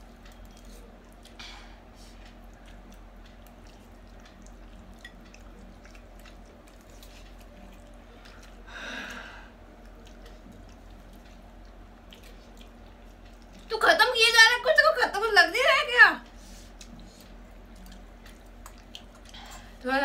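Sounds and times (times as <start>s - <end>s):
wet chewing of noodles: 0.0s - 13.8s, 16.2s - 19.8s.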